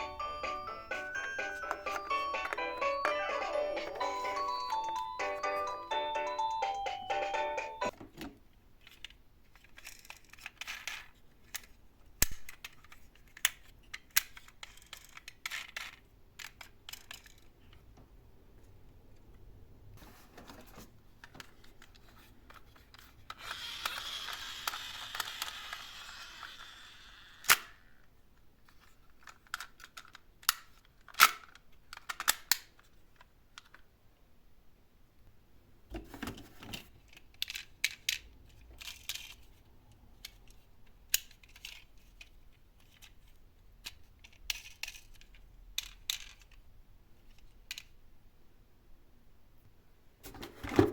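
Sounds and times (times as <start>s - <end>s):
toy cars clicking: 8.8s - 17.5s, 22.5s - 28.0s, 37.1s - 39.5s, 40.2s - 43.2s, 43.8s - 46.6s
toy car rolling rattle: 23.3s - 27.8s.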